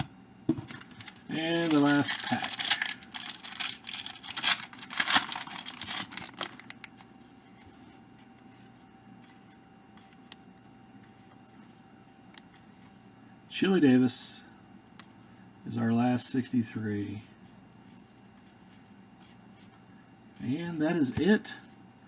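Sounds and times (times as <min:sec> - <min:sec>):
card pack wrapper tearing: 0:00.7 - 0:07.0
wrapper crinkling: 0:00.7 - 0:07.1.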